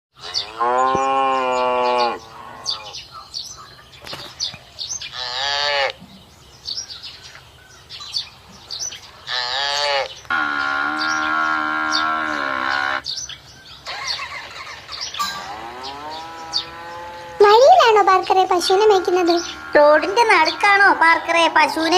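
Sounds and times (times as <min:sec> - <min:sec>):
birds chirping: 0:00.1 - 0:21.9
cows mooing: 0:00.2 - 0:03.0, 0:05.1 - 0:06.0, 0:09.3 - 0:13.1, 0:13.9 - 0:21.9.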